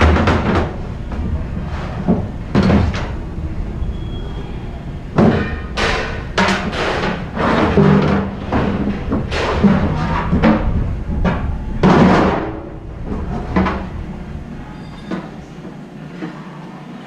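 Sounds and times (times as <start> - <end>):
scrap aluminum clanking and thudding: 5.0 - 15.8.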